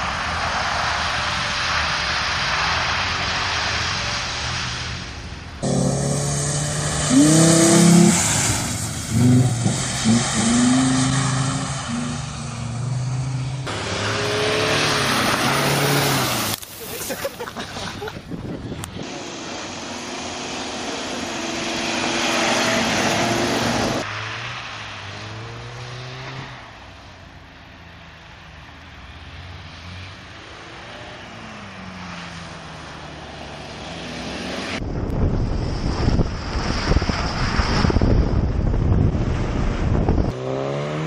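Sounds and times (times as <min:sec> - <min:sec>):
car engines revving: 0:00.0 - 0:41.0
wind buffeting microphone: 0:34.8 - 0:40.4.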